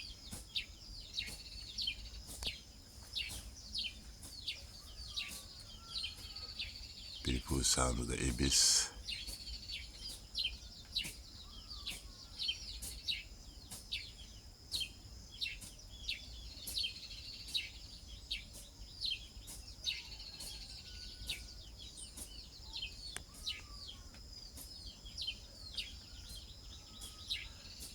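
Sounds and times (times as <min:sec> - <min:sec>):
birds chirping: 0:03.2 - 0:10.5.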